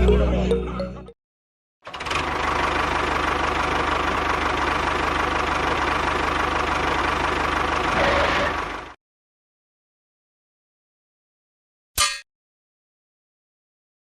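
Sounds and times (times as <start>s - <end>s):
small engine running: 1.8s - 9.0s.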